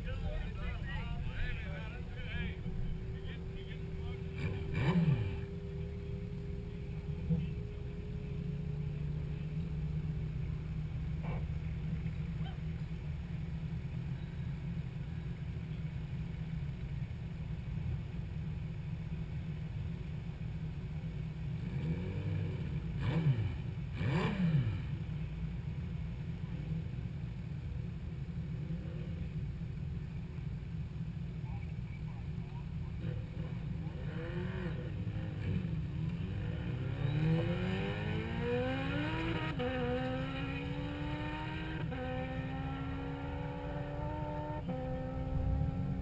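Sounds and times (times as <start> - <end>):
car engines idling: 0.0 - 46.0
engine sounds sweeping down in pitch: 1.2 - 9.2, 34.1 - 46.0.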